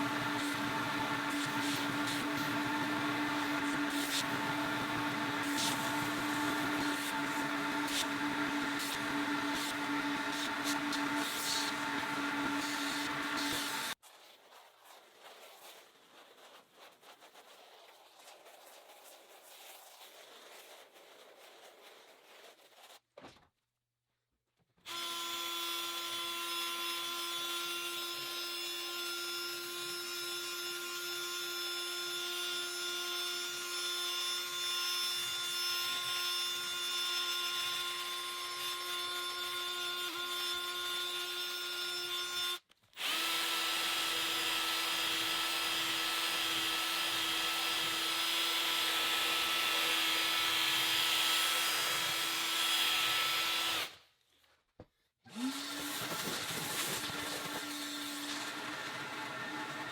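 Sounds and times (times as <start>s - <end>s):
electric motor high whine: 0.0s - 14.0s, 55.3s - 59.9s.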